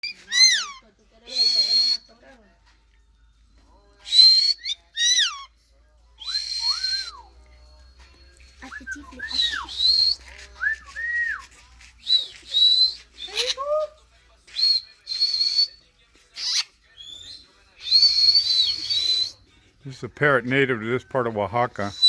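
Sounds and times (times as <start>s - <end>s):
parrot whistles and squawks: 0.0s - 2.2s, 4.0s - 5.6s, 6.2s - 7.4s, 8.1s - 19.5s, 21.8s - 22.0s.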